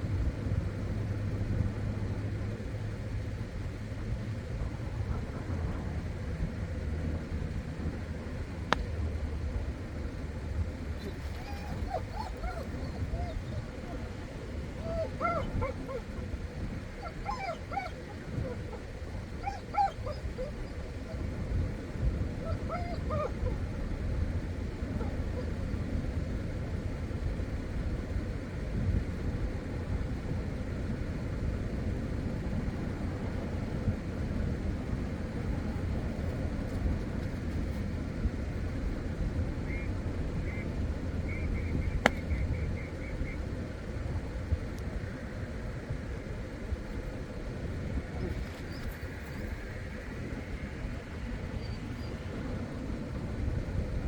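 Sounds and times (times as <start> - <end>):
low outdoor rumble: 0.0 - 54.0.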